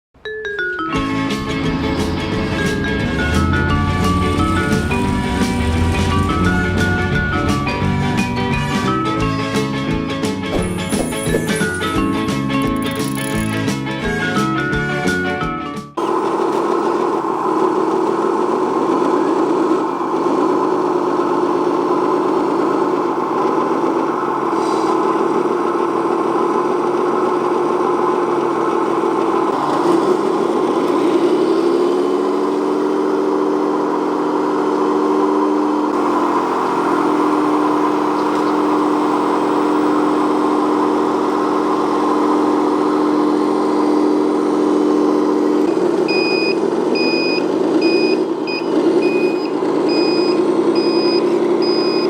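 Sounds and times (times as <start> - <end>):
toy truck electronic engine sound: 10.5 - 13.7, 16.0 - 52.0.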